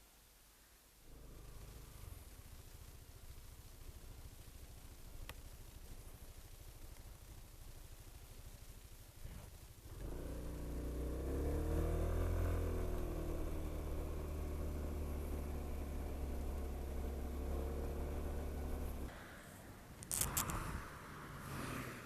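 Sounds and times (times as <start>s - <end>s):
vehicle engine humming: 1.0s - 22.0s.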